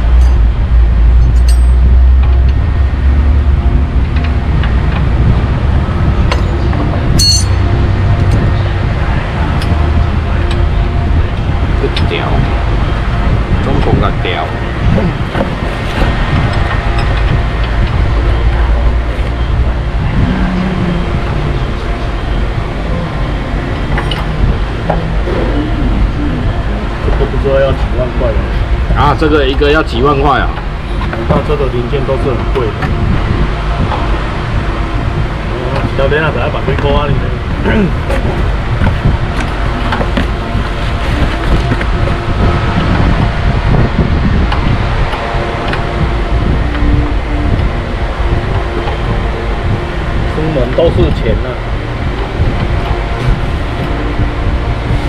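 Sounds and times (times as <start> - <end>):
truck engine rumbling: 0.0 - 55.0.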